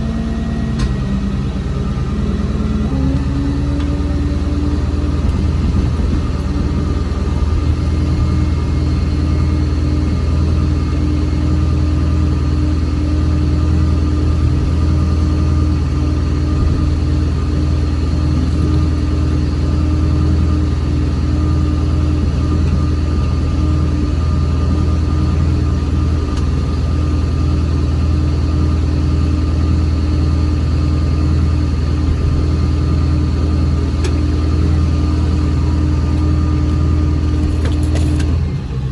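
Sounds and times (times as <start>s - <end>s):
vehicle engine droning: 0.0s - 38.9s.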